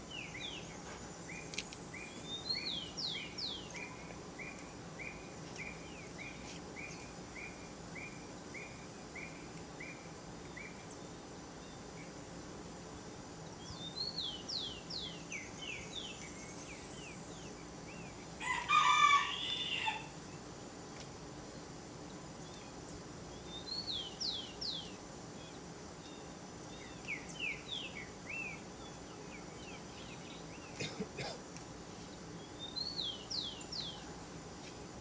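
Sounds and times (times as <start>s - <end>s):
rooster crowing: 18.4s - 20.2s.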